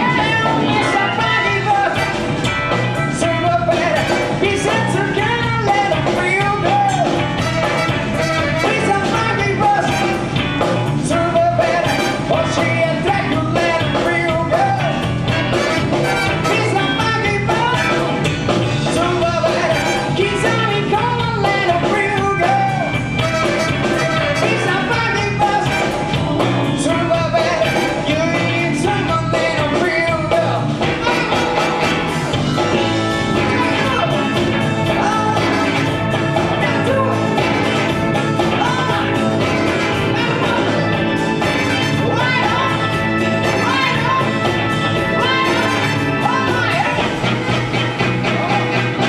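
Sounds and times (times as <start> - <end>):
person singing: 0.0 - 2.4, 3.0 - 10.4, 11.0 - 31.8, 32.7 - 47.3
live rock and roll band: 0.0 - 49.0.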